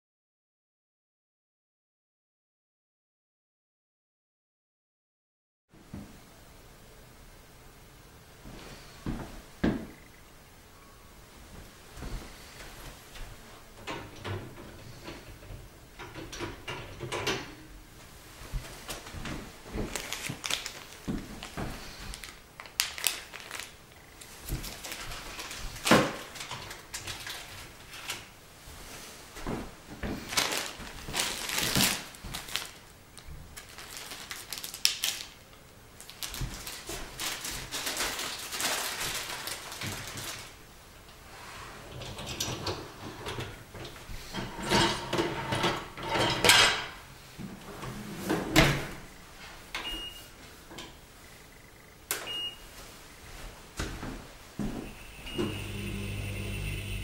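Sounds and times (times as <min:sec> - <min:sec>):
dishes and racks clattering: 0:13.8 - 0:17.7, 0:41.8 - 0:47.1.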